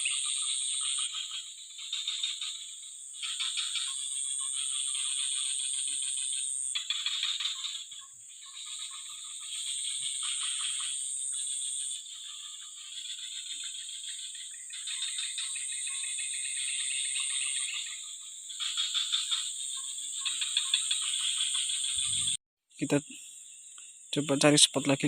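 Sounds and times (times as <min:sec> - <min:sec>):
frogs calling in rattling trills: 0:00.0 - 0:25.0
high-pitched insect whine: 0:00.0 - 0:25.0.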